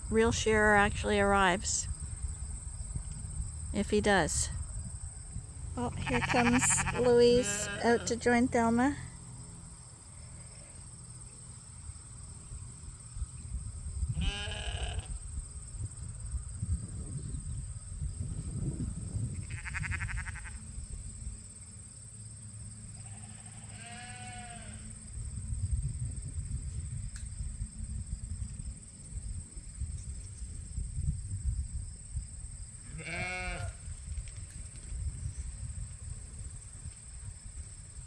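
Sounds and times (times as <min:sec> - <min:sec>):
sheep bleating: 0:05.8 - 0:08.4, 0:14.2 - 0:15.1, 0:19.4 - 0:20.6, 0:23.0 - 0:24.8, 0:32.9 - 0:33.8.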